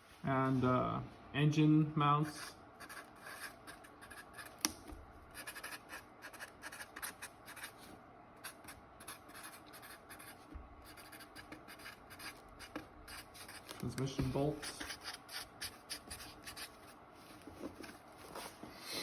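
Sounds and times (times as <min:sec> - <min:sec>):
pen scratching on paper: 0:02.3 - 0:04.6, 0:05.3 - 0:16.9.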